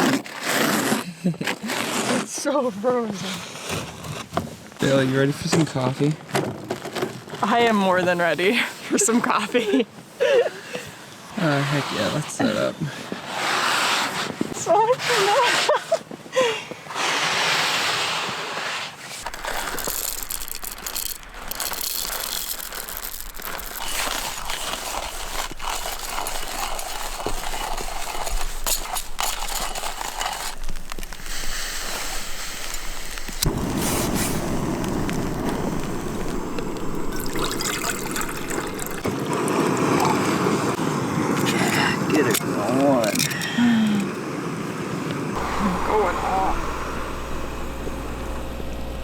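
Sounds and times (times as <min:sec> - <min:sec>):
water pouring and trickling: 0:19.2 - 0:40.8.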